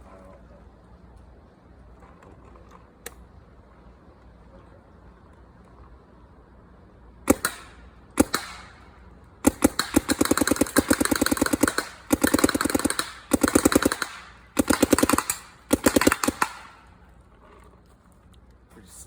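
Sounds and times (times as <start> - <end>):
paintball marker firing: 7.3 - 17.0.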